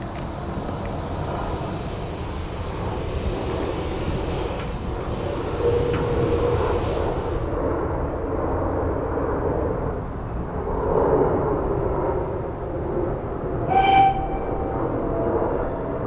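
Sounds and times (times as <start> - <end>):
steam hissing: 0.0 - 7.6
steam train rumbling: 0.0 - 8.0, 12.9 - 16.0.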